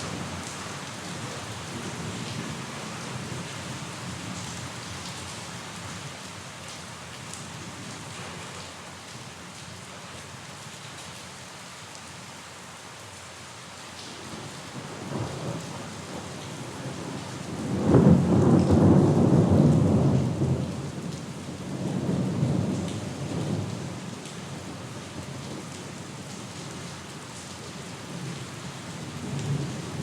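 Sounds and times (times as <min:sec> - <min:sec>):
steady rain: 0:00.0 - 0:30.0
thunder rumbling: 0:14.3 - 0:24.0.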